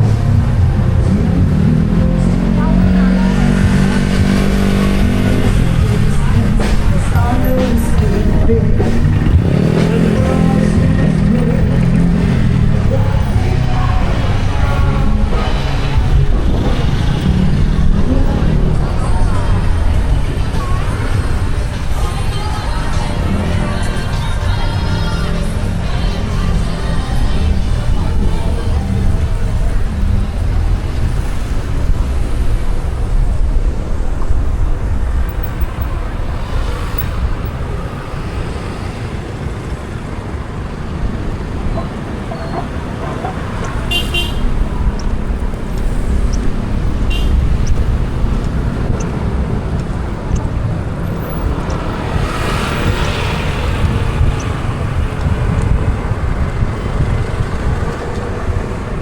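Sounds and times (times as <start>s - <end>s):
road traffic rumble: 0.0s - 59.0s
high car horn toots: 43.6s - 45.0s, 47.0s - 47.5s.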